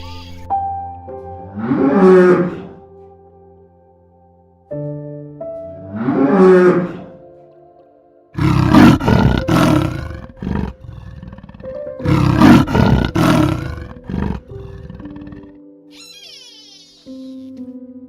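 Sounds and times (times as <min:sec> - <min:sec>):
background music: 0:00.0 - 0:18.0
large animal roaring: 0:01.6 - 0:02.8, 0:05.9 - 0:07.2, 0:08.4 - 0:15.6.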